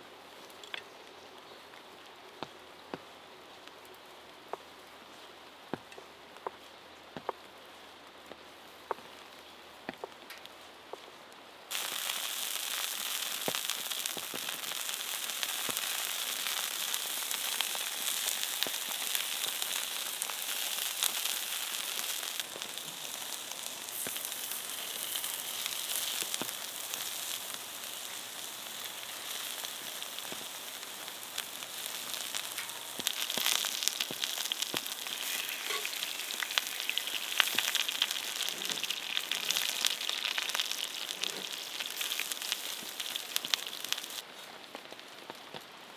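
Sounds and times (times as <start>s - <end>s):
fries sizzling in hot oil: 11.7s - 44.2s.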